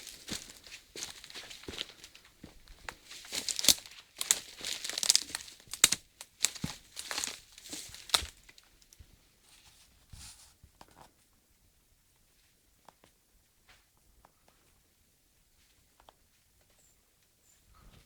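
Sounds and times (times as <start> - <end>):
dry leaves and twigs crackling: 0.0 - 9.0.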